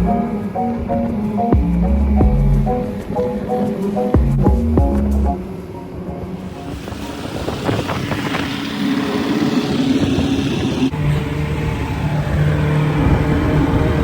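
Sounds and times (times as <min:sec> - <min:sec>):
motor engine running: 0:06.5 - 0:10.9.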